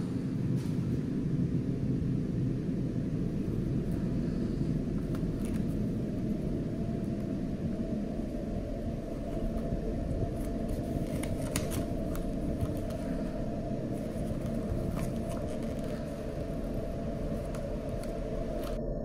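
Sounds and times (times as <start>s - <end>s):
low rumble: 0.0s - 19.0s
paper tags rustling: 10.4s - 13.3s, 13.9s - 18.8s.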